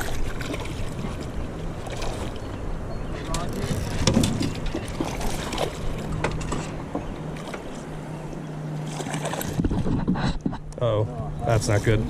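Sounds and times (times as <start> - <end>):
boat motor humming: 0.0 - 12.0
knocks on hull and gear: 3.6 - 5.2.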